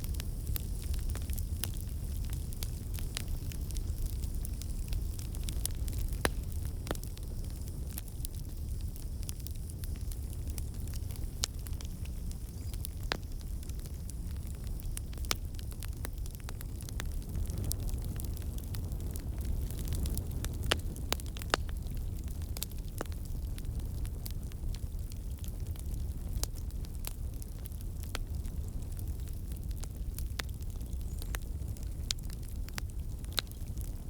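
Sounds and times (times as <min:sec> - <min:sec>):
fire crackling in a fireplace: 0:00.0 - 0:34.0.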